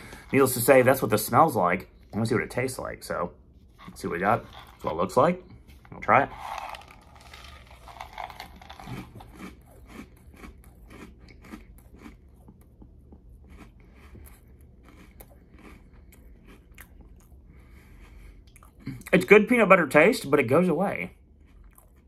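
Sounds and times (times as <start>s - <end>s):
person chewing crunchy cereal: 0.0s - 1.3s, 3.7s - 19.1s, 21.2s - 22.0s.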